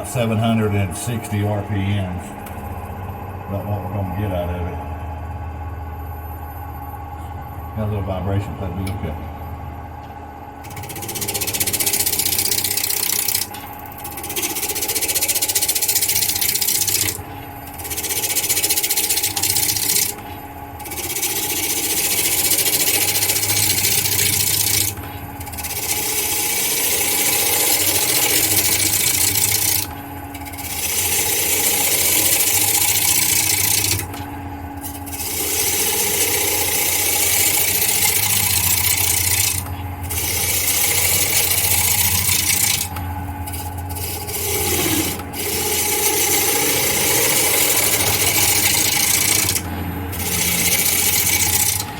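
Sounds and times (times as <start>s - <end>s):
wood lathe humming: 0.0s - 51.9s
lathe tool shaving wood hiss: 10.6s - 34.2s, 34.8s - 51.9s.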